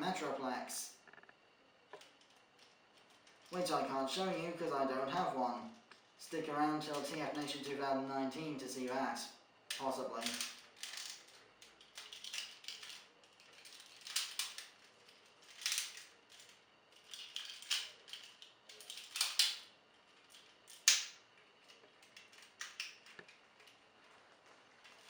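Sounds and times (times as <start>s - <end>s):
plastic toy clicking and clattering: 9.7s - 23.8s.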